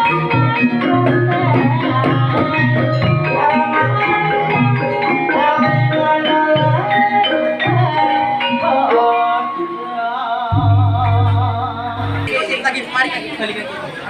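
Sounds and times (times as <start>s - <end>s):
ringing mallet instrument notes: 0.0s - 12.7s
gamelan music: 0.0s - 13.1s
low drum beats: 10.5s - 12.3s
held wavering note: 10.5s - 12.6s.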